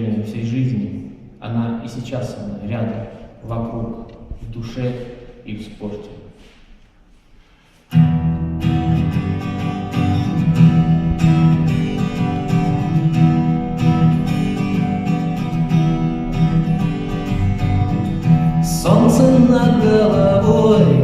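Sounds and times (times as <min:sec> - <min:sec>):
acoustic guitar strumming: 0:07.9 - 0:21.0.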